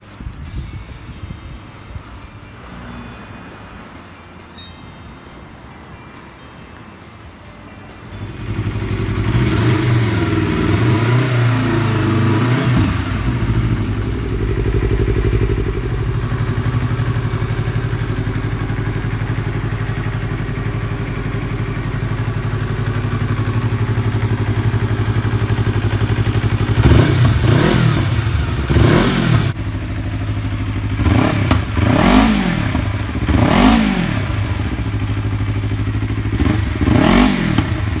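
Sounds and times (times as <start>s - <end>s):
motorcycle engine idling and revving: 7.9s - 38.0s.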